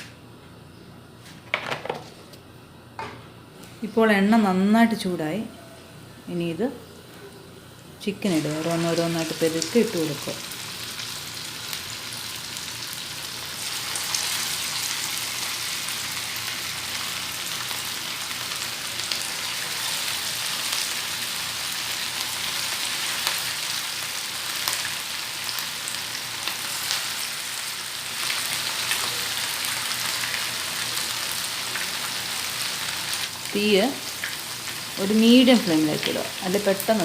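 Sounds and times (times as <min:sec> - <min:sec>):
chicken frying in hot oil: 0:08.3 - 0:37.0.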